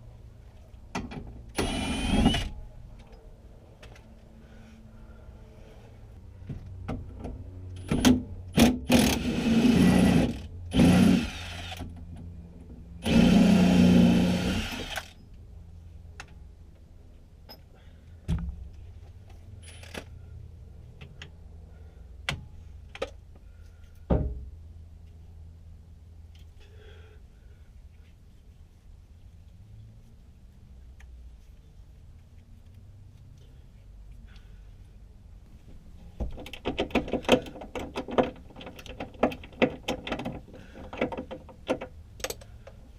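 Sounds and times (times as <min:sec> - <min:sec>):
power tool buzzing: 0:13.0 - 0:15.2.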